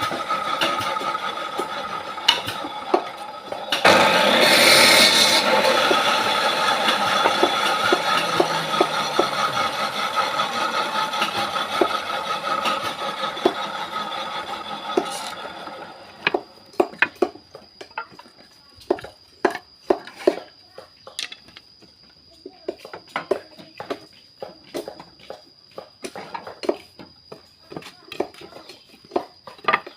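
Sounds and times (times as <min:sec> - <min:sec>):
power saw whirring: 0:00.0 - 0:17.1.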